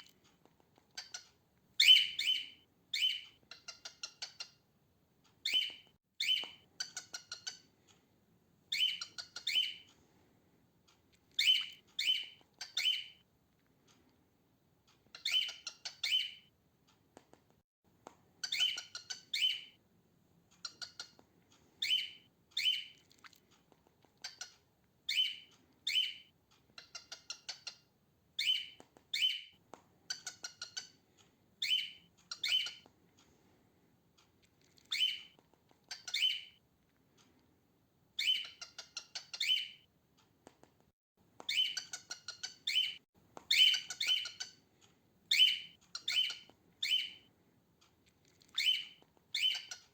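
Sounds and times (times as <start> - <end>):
cockatiel harsh chirped calls: 1.8 - 4.6, 8.7 - 9.8, 11.4 - 13.2, 15.2 - 16.4, 18.4 - 19.7, 35.9 - 36.5, 41.5 - 44.6, 45.3 - 47.2, 48.6 - 49.9.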